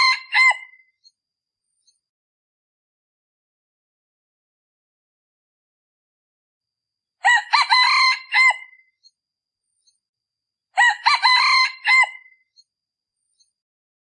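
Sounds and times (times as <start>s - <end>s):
rooster crowing: 0.0s - 0.8s, 7.2s - 8.8s, 10.8s - 12.4s.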